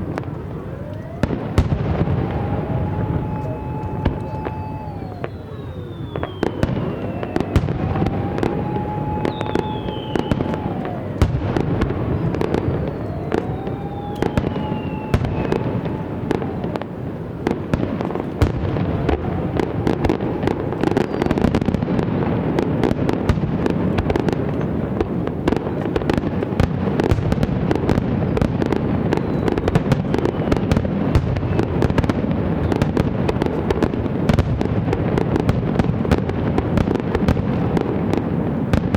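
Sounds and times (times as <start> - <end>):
fireworks booming: 0.0 - 38.9
fireworks crackling: 0.0 - 38.9
whistling firework shells: 0.0 - 38.9.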